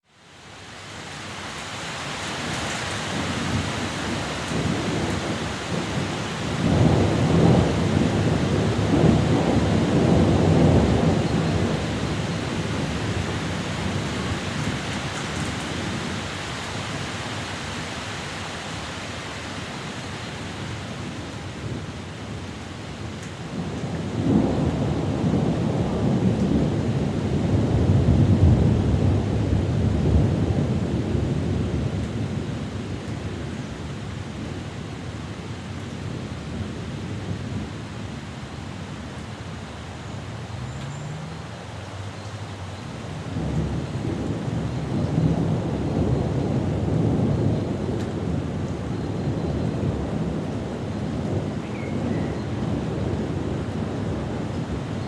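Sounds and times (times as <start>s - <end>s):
thunder rumbling: 2.1s - 55.0s.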